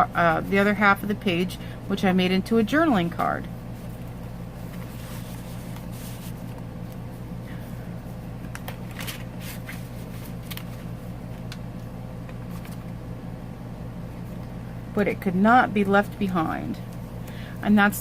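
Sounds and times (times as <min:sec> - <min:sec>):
steady low hum: 0:00.0 - 0:18.0
paper rustling: 0:03.8 - 0:07.0, 0:08.4 - 0:11.5, 0:12.3 - 0:12.9.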